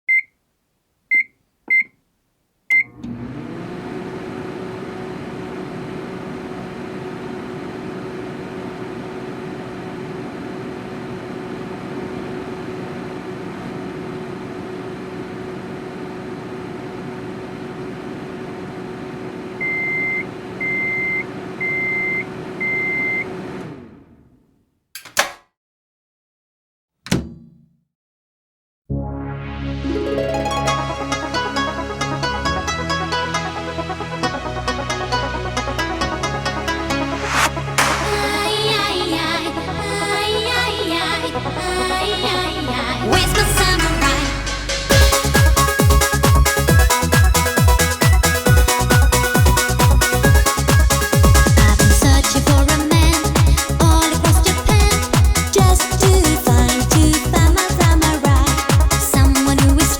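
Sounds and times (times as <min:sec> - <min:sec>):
keypad beeps: 0:00.1 - 0:00.3, 0:01.1 - 0:02.0, 0:19.6 - 0:23.2
loud microwave beeps: 0:00.1 - 0:00.3, 0:01.1 - 0:02.0, 0:02.7 - 0:03.0, 0:19.6 - 0:23.4
microwave oven humming: 0:02.8 - 0:24.3
sharp clicks: 0:25.0 - 0:25.4.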